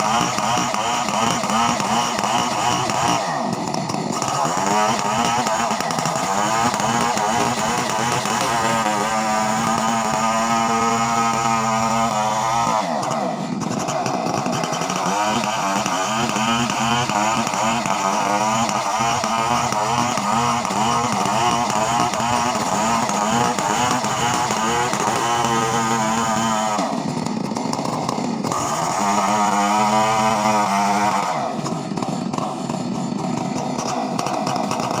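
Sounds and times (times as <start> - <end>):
chainsaw engine revving: 0.0 - 35.0.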